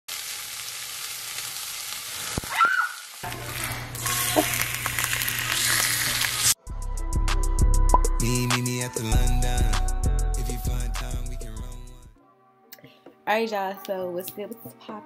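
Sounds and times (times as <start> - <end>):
food sizzling in a frying pan: 0.1 - 6.6.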